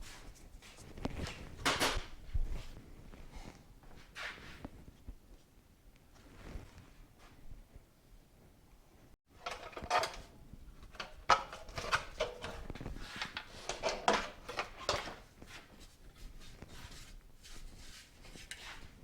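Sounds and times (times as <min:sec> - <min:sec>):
metallic clatter of tools: 0:09.4 - 0:15.2.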